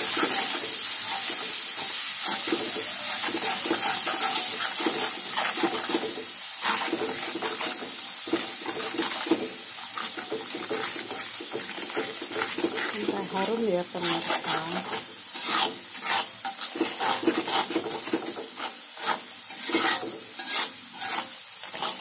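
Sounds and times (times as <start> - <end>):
metal spatula scraping a wok: 0.0 - 22.0
spice paste sizzling in oil: 0.0 - 22.0.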